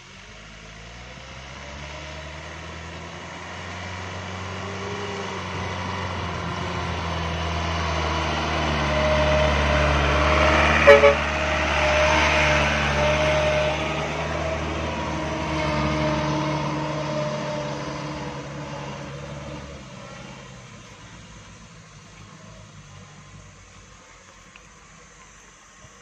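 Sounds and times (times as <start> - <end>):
diesel engine running under load: 0.0 - 26.0
truck horn toots: 8.8 - 13.9.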